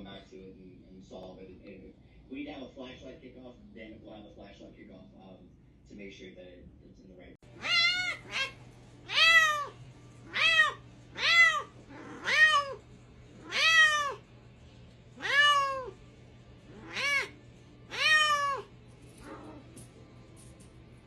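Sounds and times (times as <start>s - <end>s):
cat meowing: 7.5s - 14.3s, 15.2s - 16.0s, 16.7s - 19.8s.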